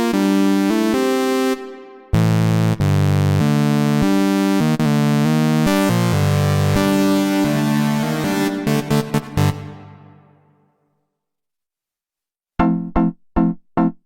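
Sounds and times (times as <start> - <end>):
synthesizer bass line: 0.2 - 10.5.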